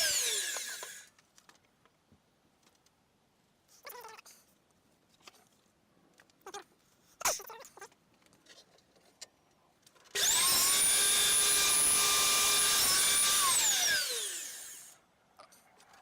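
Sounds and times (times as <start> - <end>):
electric motor whine: 0.0 - 1.1, 10.2 - 15.0.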